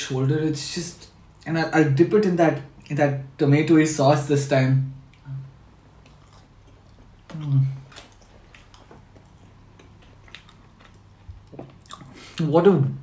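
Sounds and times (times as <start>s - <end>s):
man chewing food: 5.0s - 12.4s
short hummed vocal sound: 5.2s - 5.6s, 7.3s - 8.0s.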